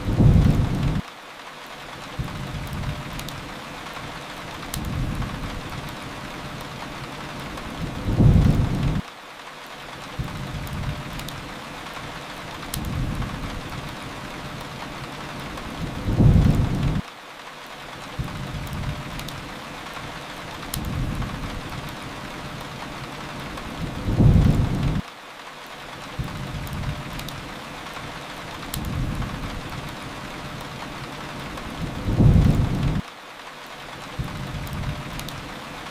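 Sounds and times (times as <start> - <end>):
thunder rumbling: 0.0 - 1.0, 7.4 - 9.0, 15.4 - 17.0, 23.4 - 25.0, 28.8 - 30.0, 30.8 - 33.0
rain hiss: 0.0 - 35.9.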